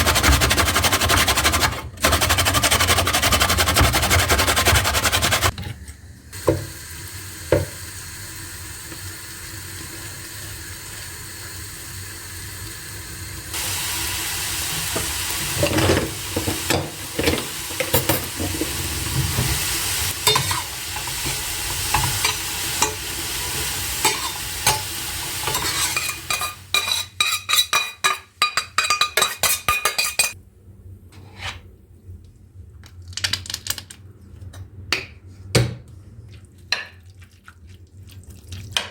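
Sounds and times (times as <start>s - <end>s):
food sizzling in a frying pan: 6.4s - 28.0s
spoon scraping a pan: 20.2s - 30.4s.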